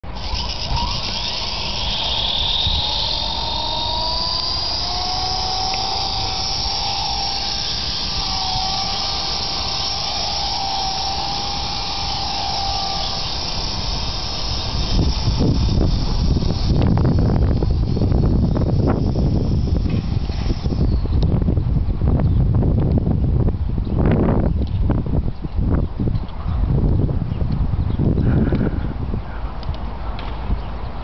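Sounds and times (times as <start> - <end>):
model helicopter motor whine: 0.0 - 22.4.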